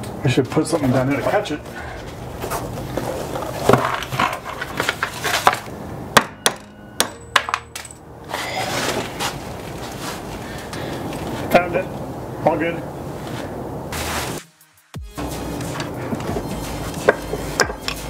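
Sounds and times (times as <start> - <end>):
metal handling noise: 2.4 - 10.0
metal part dropping and bouncing: 3.6 - 8.1, 17.0 - 18.0.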